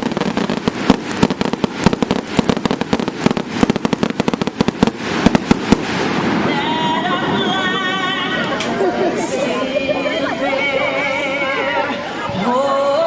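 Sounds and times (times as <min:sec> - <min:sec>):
fireworks popping and crackling: 0:00.0 - 0:09.3.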